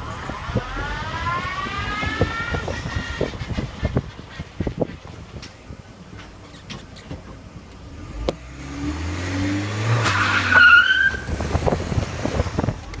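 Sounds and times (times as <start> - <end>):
car engine revving: 0.0 - 4.3, 7.8 - 13.0.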